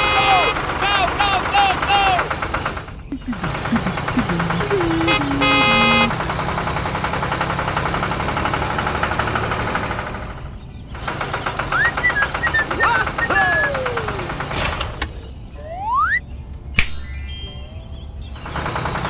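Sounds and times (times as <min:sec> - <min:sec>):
falling tones: 0:03.1 - 0:06.2
horn-like blast: 0:03.9 - 0:06.2.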